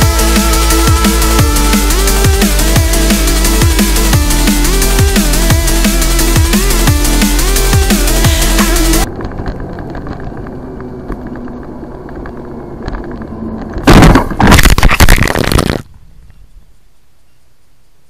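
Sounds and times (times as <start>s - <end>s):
electronic music: 0.0s - 9.1s
road and engine noise in vehicle: 4.8s - 14.5s
car crash impacts and scraping: 13.7s - 15.8s.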